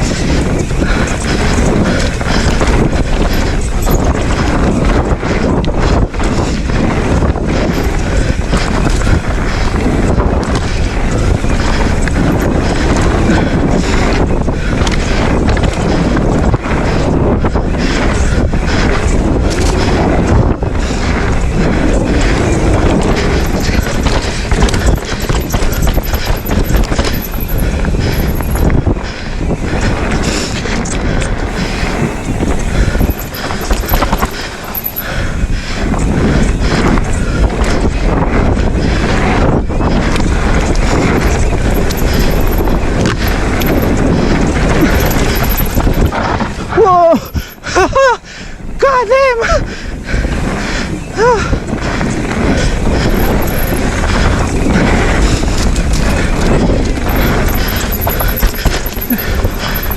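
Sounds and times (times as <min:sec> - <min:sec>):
bike tyre roar on dirt: 0:00.0 - 0:48.8, 0:49.6 - 0:59.9
wind buffeting microphone: 0:00.0 - 0:59.9
low rumble: 0:31.4 - 0:37.8.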